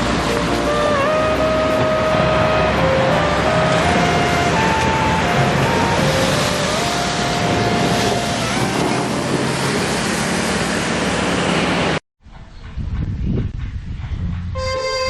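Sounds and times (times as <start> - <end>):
vehicle rushing and rumbling: 0.0 - 12.0.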